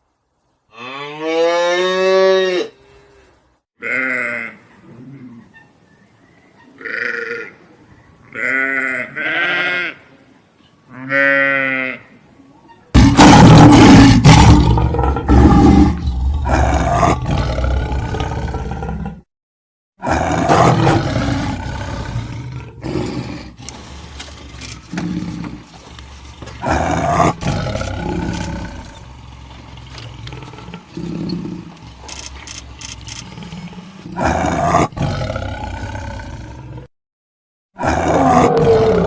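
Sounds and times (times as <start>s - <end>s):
wild animal roaring and growling: 13.0s - 19.3s, 20.0s - 23.8s, 26.6s - 31.8s, 33.2s - 36.9s, 37.8s - 39.0s.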